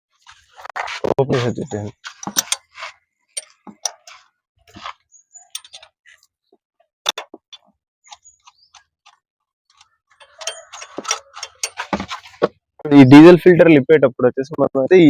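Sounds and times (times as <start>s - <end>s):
tools clicking and tapping: 2.0s - 4.9s, 5.5s - 6.1s, 7.0s - 12.6s.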